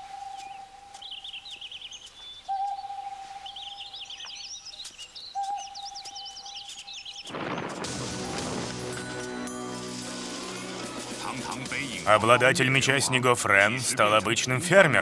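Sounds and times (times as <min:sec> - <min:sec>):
bird whistling long note: 0:00.0 - 0:01.4
bird chirping trills: 0:00.0 - 0:10.6
loud burst of music: 0:07.7 - 0:12.4.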